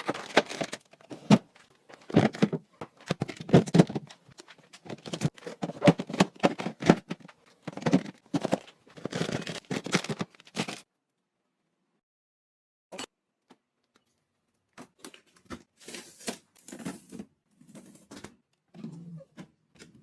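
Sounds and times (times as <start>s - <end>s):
objects knocked and rustled: 0.0s - 10.8s.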